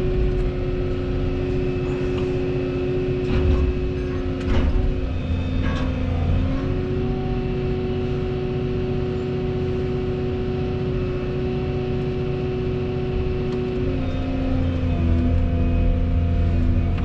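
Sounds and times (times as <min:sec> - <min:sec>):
excavator engine and hydraulics: 0:00.0 - 0:17.0
steady whine: 0:00.0 - 0:17.0.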